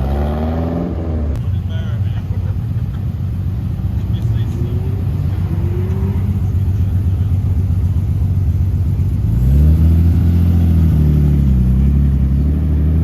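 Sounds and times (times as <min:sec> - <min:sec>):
car engines running at low revs: 0:00.0 - 0:13.0
car engine passing by: 0:04.0 - 0:07.6.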